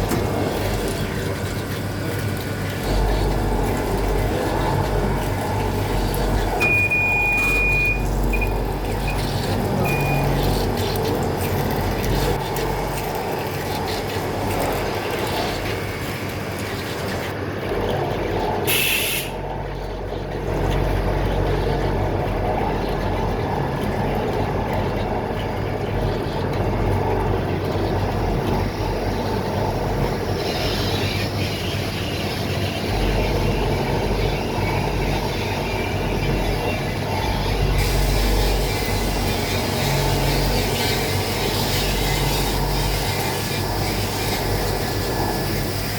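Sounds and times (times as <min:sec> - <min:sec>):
high beeps: 0:06.6 - 0:09.2, 0:09.9 - 0:10.3.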